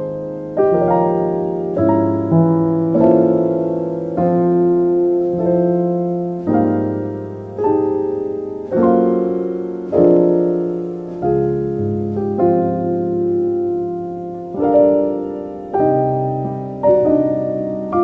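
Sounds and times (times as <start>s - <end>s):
slow soft piano chords: 0.0s - 18.0s.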